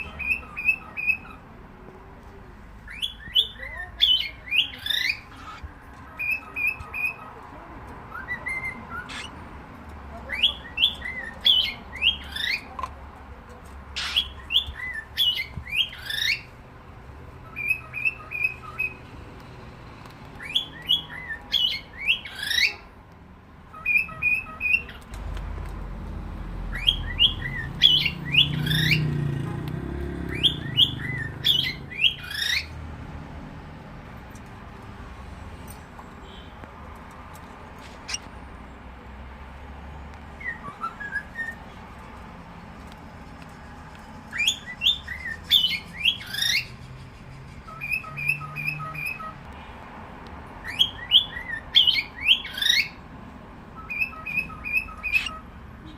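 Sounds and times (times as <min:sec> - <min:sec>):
cockatiel whistled chirps: 0:40.4 - 0:41.6, 0:53.8 - 0:55.4.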